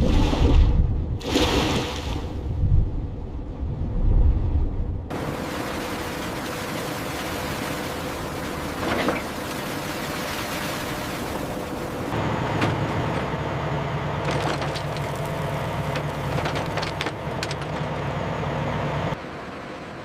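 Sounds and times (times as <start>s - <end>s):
machinery humming: 5.1s - 20.0s.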